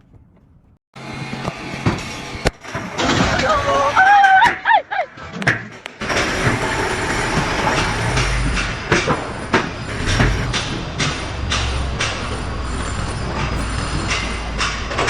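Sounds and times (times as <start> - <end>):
mechanical rumble: 5.8 - 15.0.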